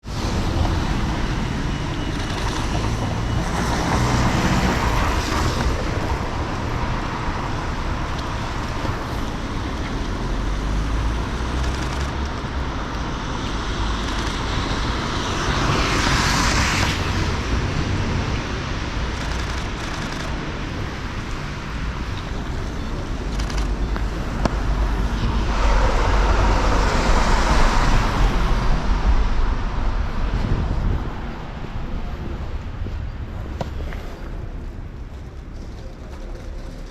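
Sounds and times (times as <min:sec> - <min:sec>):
cars passing: 0:00.0 - 0:36.9
rumble of traffic: 0:00.0 - 0:36.9.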